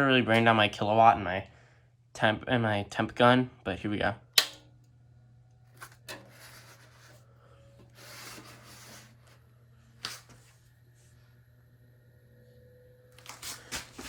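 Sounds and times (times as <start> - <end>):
steady low hum: 0.0 - 14.0
sharp click: 4.4 - 4.6.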